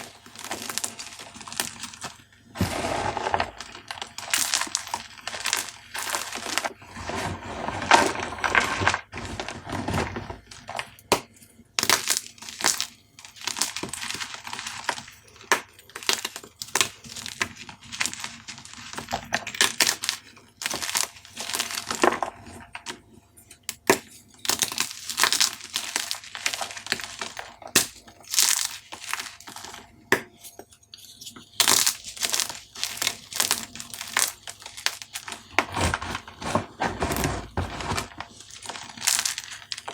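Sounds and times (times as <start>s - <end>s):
chalk cubes crunching: 0.0s - 10.9s, 24.5s - 29.8s, 31.1s - 39.9s.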